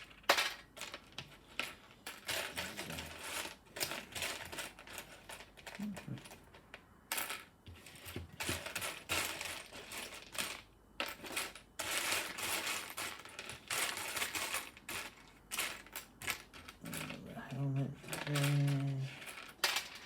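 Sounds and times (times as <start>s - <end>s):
plastic toy bricks clattering: 0.0s - 20.0s.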